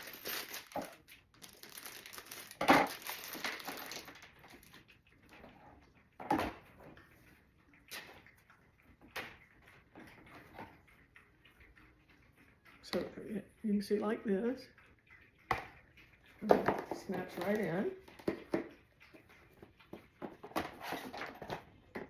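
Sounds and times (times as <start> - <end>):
plastic pieces scraping and rattling: 0.0 - 4.8, 20.2 - 22.0.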